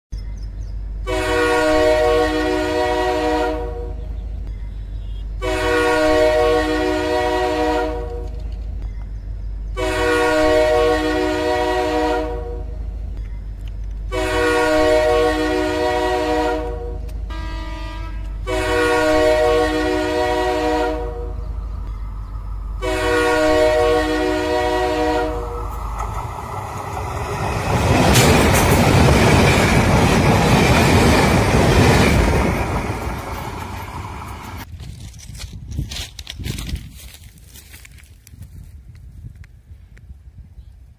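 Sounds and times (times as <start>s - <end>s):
low rumble of approaching train: 0.1s - 40.9s
train wheel and rail rush: 0.5s - 40.1s
train horn blasts: 1.0s - 4.2s, 5.4s - 8.4s, 9.7s - 12.9s, 14.1s - 22.0s, 22.7s - 25.8s.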